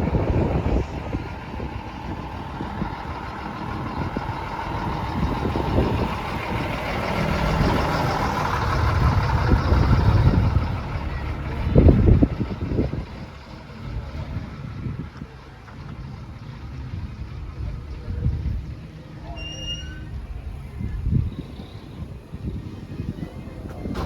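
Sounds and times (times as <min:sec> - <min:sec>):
truck engine passing by: 0:00.0 - 0:24.0.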